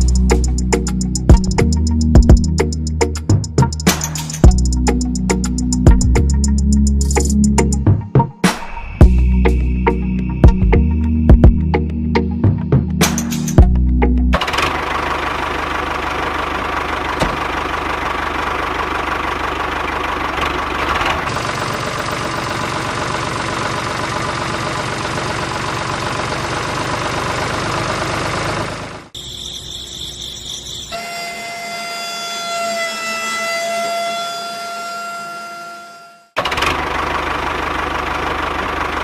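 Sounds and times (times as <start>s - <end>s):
small tractor engine running: 0.0s - 7.8s, 13.6s - 32.4s, 36.4s - 39.0s
high whine: 8.5s - 12.2s.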